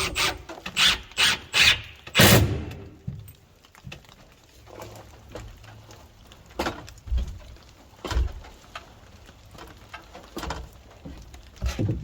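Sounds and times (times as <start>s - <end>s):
dull knocks and thumps: 10.4s - 12.0s.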